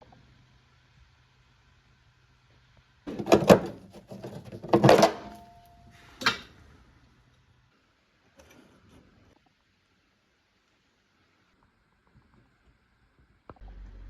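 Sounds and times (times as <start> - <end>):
faint low hum: 0.0 - 14.0
objects knocking and rattling: 3.1 - 5.5.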